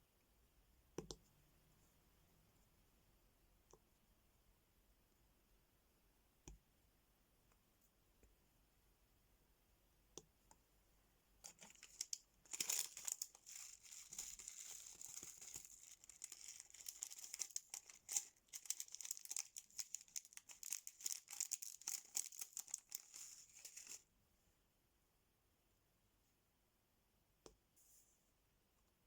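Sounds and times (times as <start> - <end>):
plastic packaging crinkling: 11.4 - 24.0.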